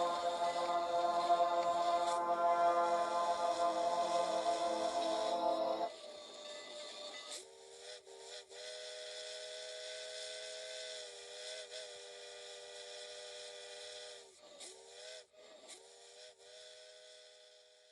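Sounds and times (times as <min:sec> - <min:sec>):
steam locomotive chime whistle: 0:00.0 - 0:05.9.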